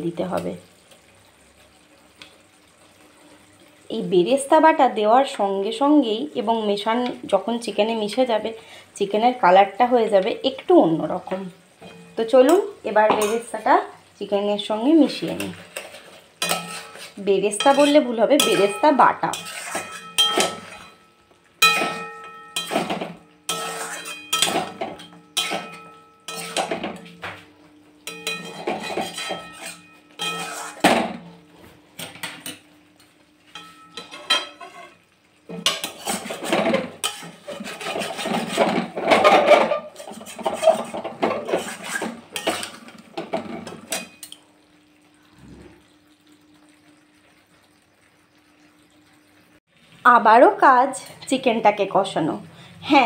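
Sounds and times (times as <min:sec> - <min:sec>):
spatula scraping a pan: 0:11.8 - 0:13.5, 0:15.2 - 0:27.2, 0:28.0 - 0:31.3, 0:33.5 - 0:44.3.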